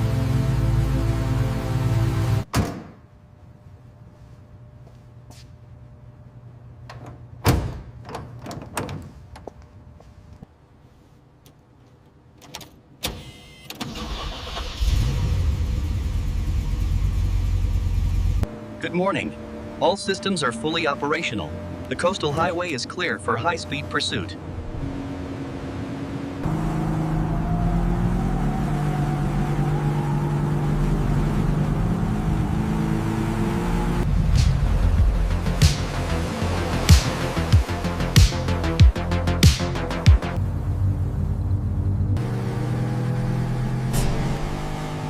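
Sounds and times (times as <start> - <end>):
car engine cranking and running: 13.8 - 19.8
car engine running: 15.4 - 45.0.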